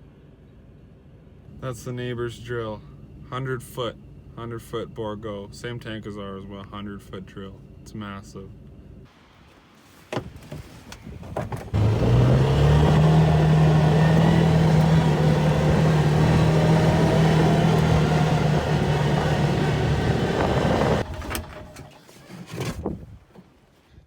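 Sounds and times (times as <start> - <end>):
vehicle engine revving: 11.7 - 21.8.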